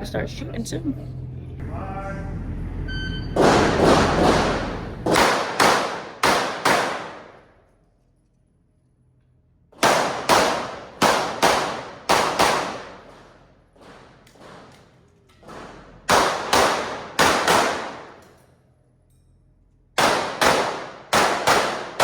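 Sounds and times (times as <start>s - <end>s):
pistol shots with echoes: 3.4s - 7.5s, 9.8s - 13.3s, 15.5s - 18.3s, 20.0s - 22.0s.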